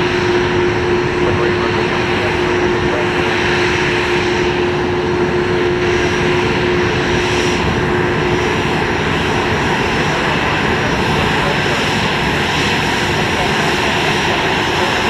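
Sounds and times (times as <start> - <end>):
airliner engines running: 0.0 - 15.0.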